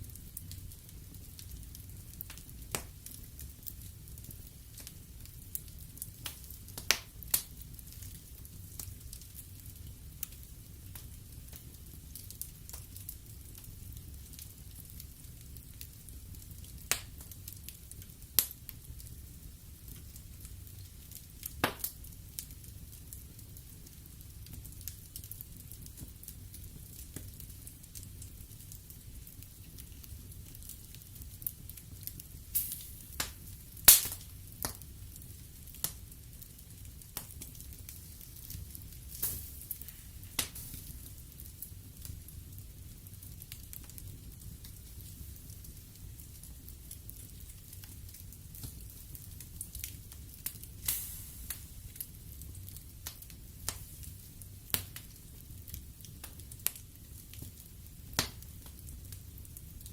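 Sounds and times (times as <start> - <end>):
wood fire crackling: 0.0 - 59.9
sharp pops from fire: 0.1 - 59.9.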